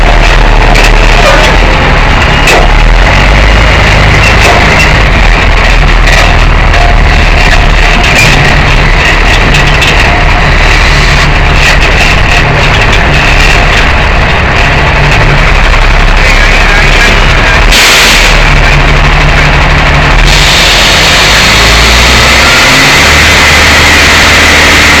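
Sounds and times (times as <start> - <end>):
tow truck engine running: 0.0 - 25.0
loud hiss: 20.2 - 25.0.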